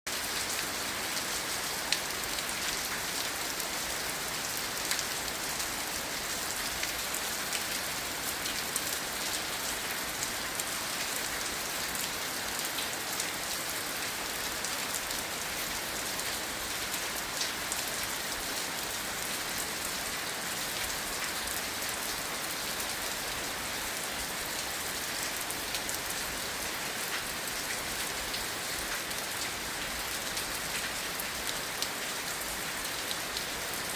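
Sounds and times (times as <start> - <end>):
rain falling on grass: 0.1 - 33.9.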